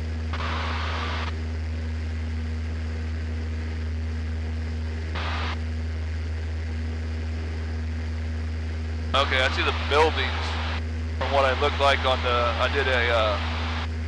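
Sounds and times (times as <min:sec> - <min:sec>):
propeller plane engine droning: 0:00.0 - 0:14.0.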